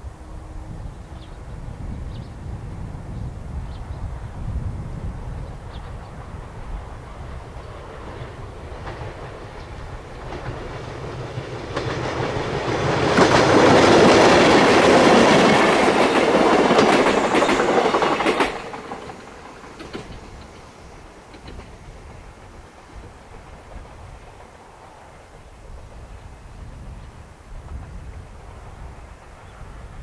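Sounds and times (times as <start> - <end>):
train wheels clacking passing: 5.7 - 26.3.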